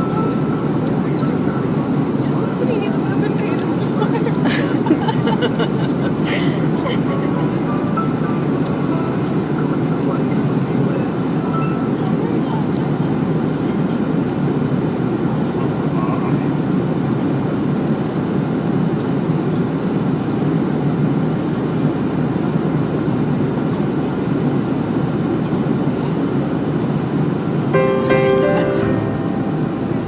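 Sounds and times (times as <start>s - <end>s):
airliner cabin engine noise: 0.0s - 30.0s.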